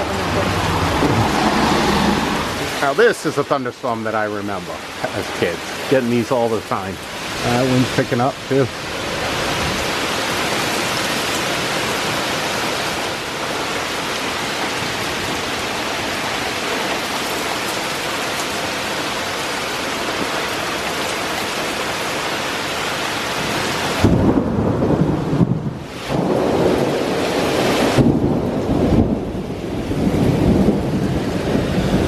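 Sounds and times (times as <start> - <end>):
thunder rumble: 0.0 - 2.9, 23.9 - 32.0
heavy rain pouring: 0.0 - 32.0.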